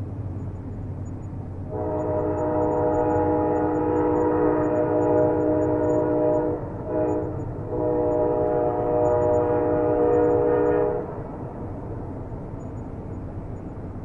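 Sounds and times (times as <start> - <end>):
train rumble: 0.0 - 14.0
train horn blasts: 1.7 - 11.3.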